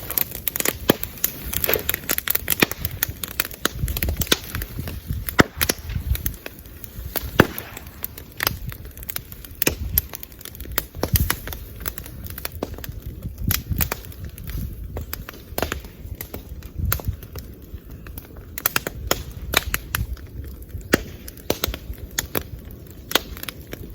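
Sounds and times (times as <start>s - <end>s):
bonfire crackling: 0.0s - 23.9s
low fire rumble: 0.0s - 23.9s
bamboo popping and banging: 5.2s - 6.2s, 7.2s - 8.6s.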